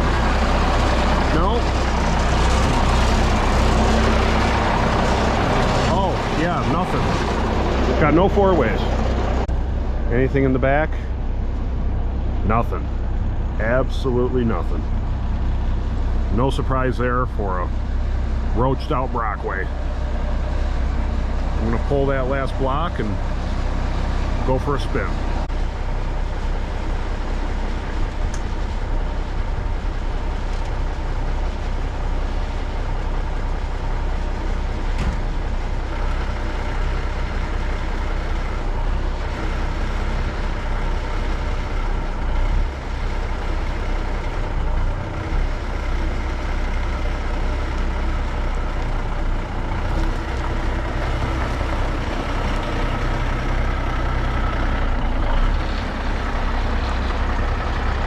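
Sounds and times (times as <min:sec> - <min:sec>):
diesel truck engine running: 0:00.0 - 0:58.0.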